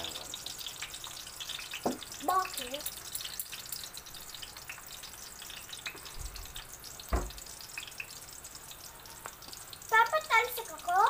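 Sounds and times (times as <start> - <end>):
hot dogs sizzling in oil: 0.0 - 11.0
oil spitting crackles: 0.0 - 11.0
dull knock: 7.1 - 7.4.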